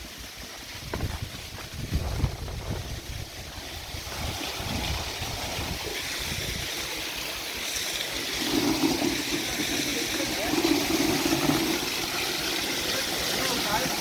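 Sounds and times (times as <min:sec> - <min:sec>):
water gushing from pump: 0:00.0 - 0:14.0.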